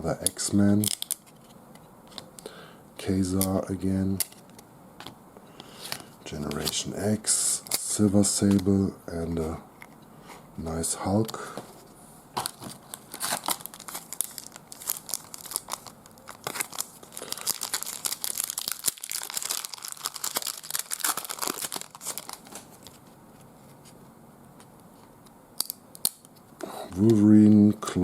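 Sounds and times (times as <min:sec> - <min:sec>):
card pack wrapper crinkling and tearing: 0:00.2 - 0:02.2, 0:05.8 - 0:06.9, 0:12.4 - 0:23.0.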